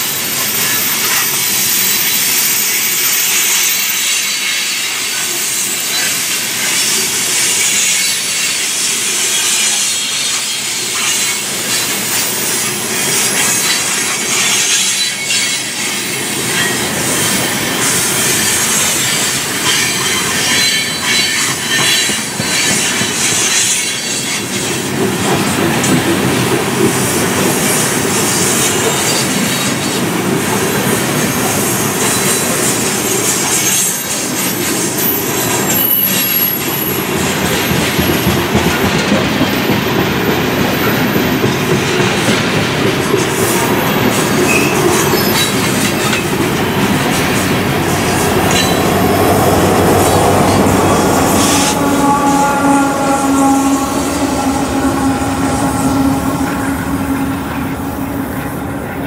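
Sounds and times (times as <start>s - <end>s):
train wheels clattering over rails: 0.0s - 53.6s
high-pitched wheel squeal: 33.6s - 38.3s, 43.8s - 59.0s.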